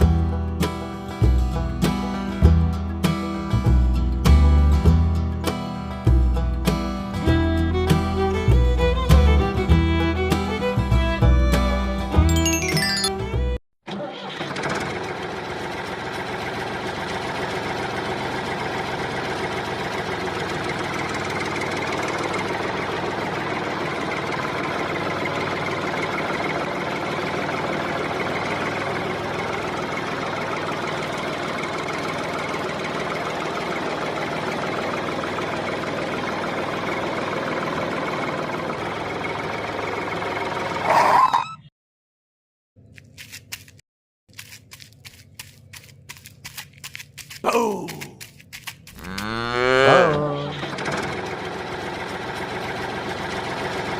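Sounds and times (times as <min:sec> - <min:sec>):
small engine running: 0:07.2 - 0:41.0, 0:43.1 - 0:53.9.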